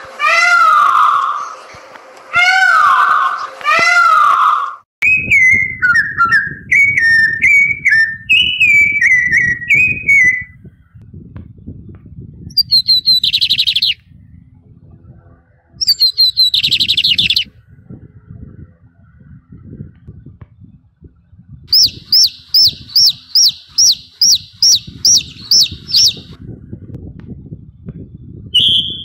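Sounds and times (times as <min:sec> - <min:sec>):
peacock call: 0:00.1 - 0:01.5, 0:02.4 - 0:04.8, 0:12.6 - 0:14.0, 0:15.8 - 0:17.5, 0:21.7 - 0:26.4, 0:28.6 - 0:29.0
bird whistling falling notes: 0:02.6 - 0:10.5, 0:12.5 - 0:14.0, 0:15.8 - 0:17.5, 0:21.7 - 0:26.4, 0:28.6 - 0:29.0
bird rapid chattering: 0:12.5 - 0:14.0, 0:15.8 - 0:17.5, 0:21.7 - 0:26.4.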